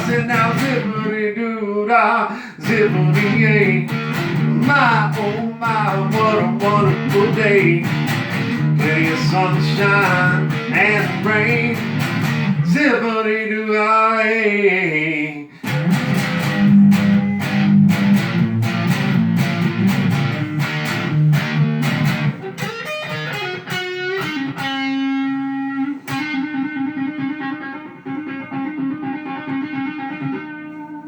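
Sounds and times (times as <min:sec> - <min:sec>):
guitar strummed chords: 0:00.0 - 0:01.2, 0:02.6 - 0:12.8, 0:15.6 - 0:31.0
picked guitar notes: 0:00.0 - 0:01.2, 0:02.6 - 0:12.8, 0:15.6 - 0:31.0.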